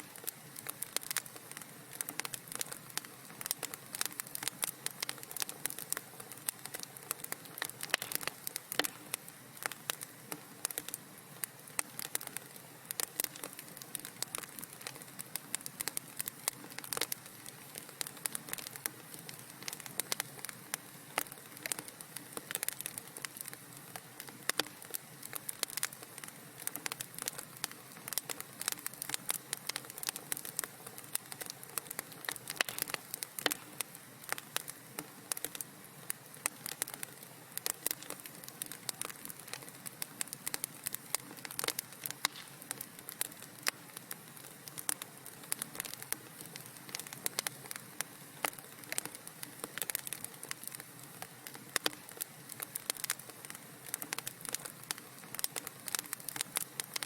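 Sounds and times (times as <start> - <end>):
soft steady hiss: 0.0 - 57.0
wood fire crackling: 0.0 - 57.0.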